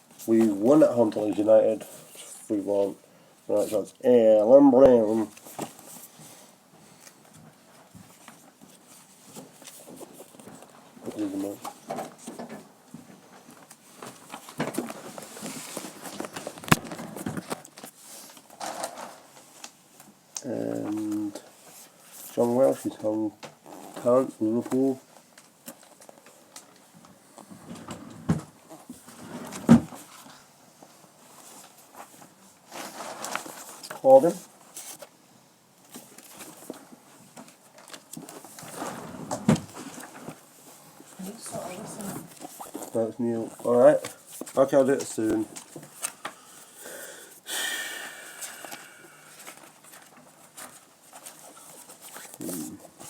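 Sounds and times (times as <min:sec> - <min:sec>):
paper pages rustling: 0:13.4 - 0:19.8, 0:30.0 - 0:35.1, 0:35.8 - 0:46.7, 0:48.5 - 0:53.0.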